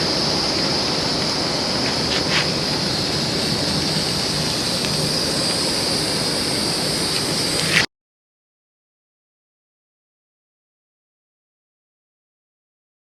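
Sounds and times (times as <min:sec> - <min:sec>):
faint fire pops: 0:01.2 - 0:05.8
food sizzling on a grill: 0:01.8 - 0:07.8.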